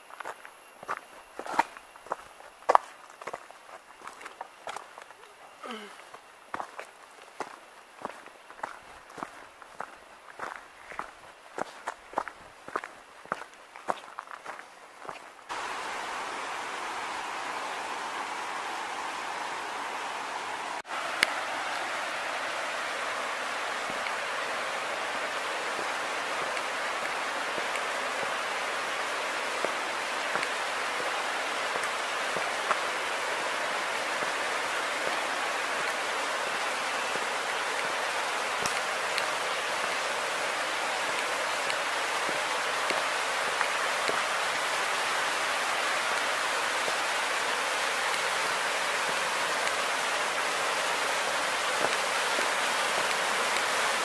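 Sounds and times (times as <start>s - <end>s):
waterfall rushing: 15.5s - 54.0s.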